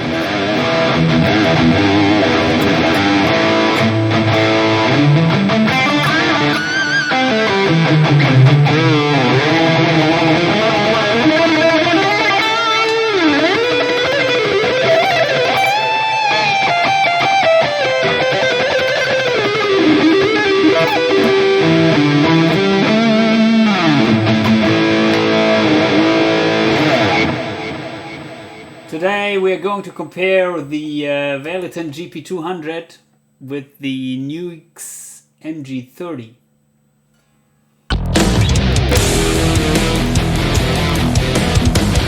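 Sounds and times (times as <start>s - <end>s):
electric guitar lead line: 0.0s - 28.9s, 37.9s - 42.0s.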